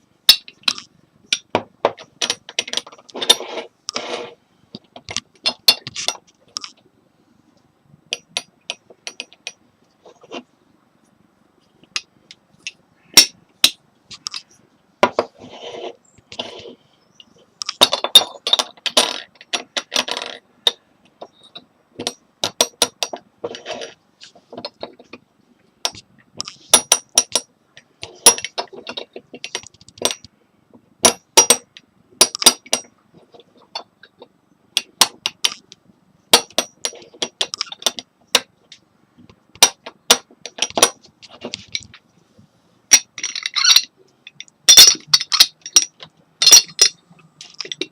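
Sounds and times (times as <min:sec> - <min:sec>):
scraping rubs: 0:03.0 - 0:04.4, 0:15.2 - 0:16.8
china clinking: 0:25.9 - 0:30.2, 0:42.9 - 0:47.9.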